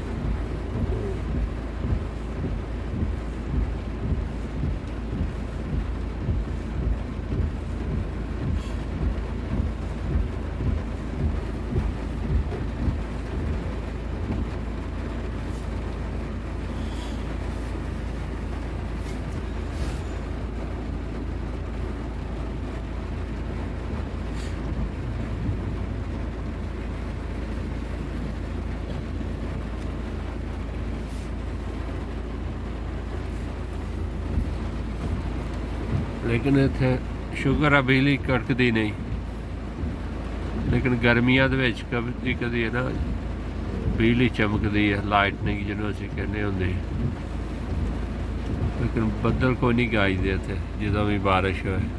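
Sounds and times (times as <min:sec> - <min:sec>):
heavy rain: 0:00.0 - 0:51.9
wind buffeting microphone: 0:38.2 - 0:41.5, 0:42.1 - 0:49.5.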